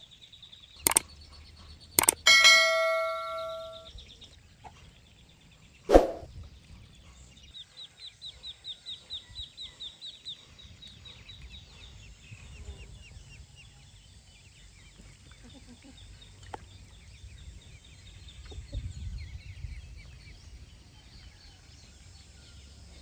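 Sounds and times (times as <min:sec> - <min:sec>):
bell ringing: 0:02.0 - 0:03.9
quick high chirps: 0:05.9 - 0:06.3.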